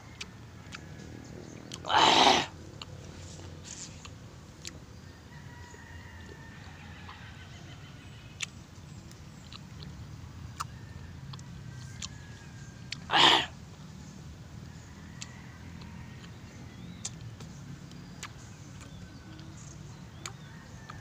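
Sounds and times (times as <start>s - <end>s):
mouth clicks and smacks: 12.9s - 13.5s, 16.2s - 21.0s
sharp exhale: 13.1s - 13.5s.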